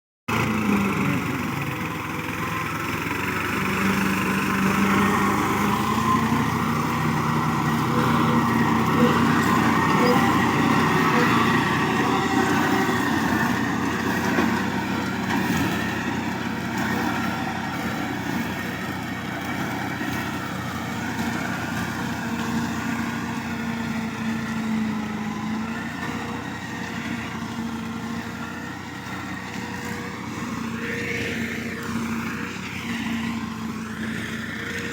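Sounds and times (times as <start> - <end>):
tractor engine droning: 0.3 - 34.9.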